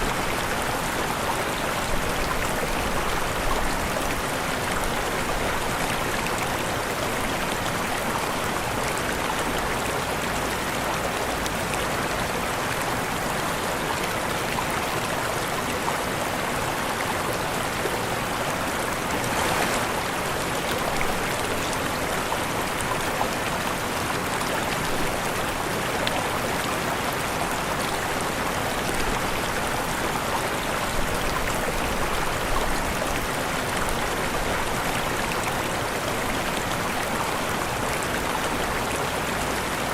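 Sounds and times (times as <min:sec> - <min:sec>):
waterfall rushing: 0:15.4 - 0:39.9.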